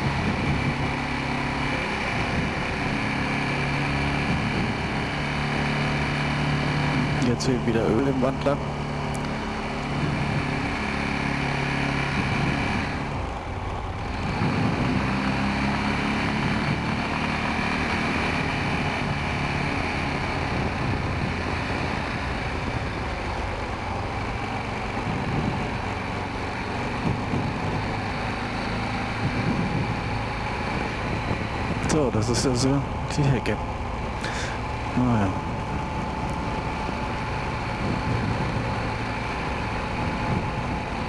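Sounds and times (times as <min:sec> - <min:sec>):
quad engine running: 0:00.0 - 0:41.0.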